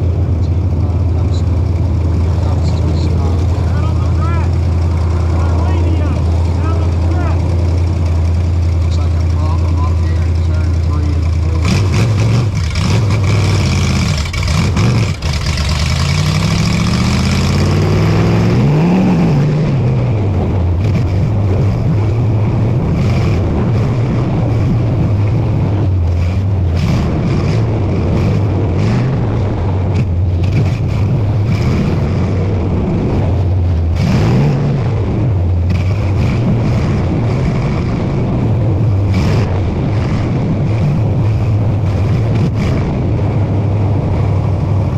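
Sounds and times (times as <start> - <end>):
race car engine running hard: 0.0 - 44.9.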